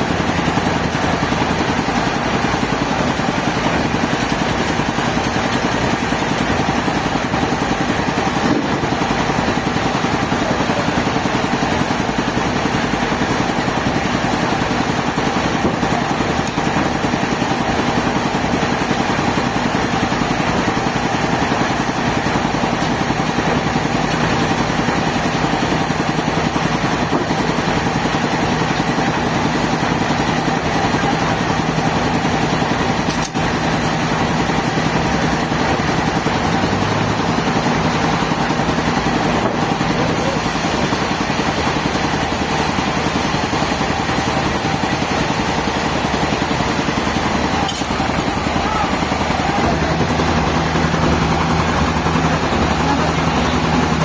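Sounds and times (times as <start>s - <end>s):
sawmill machinery droning: 0.0s - 54.0s.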